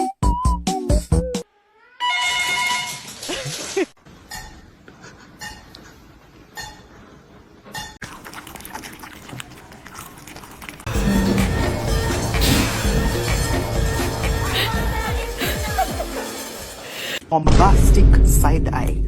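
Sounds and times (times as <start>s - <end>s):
music: 0.0s - 1.5s, 10.9s - 17.2s.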